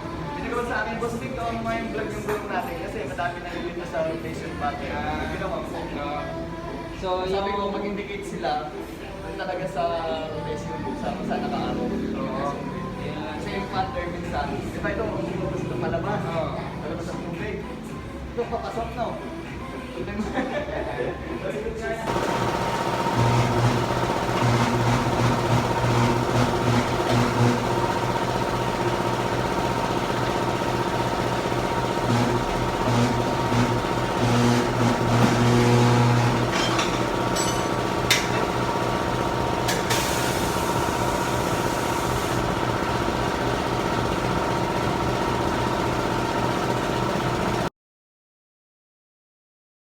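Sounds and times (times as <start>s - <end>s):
deeper motor hum: 22.1s - 47.7s
machinery humming: 22.1s - 47.7s.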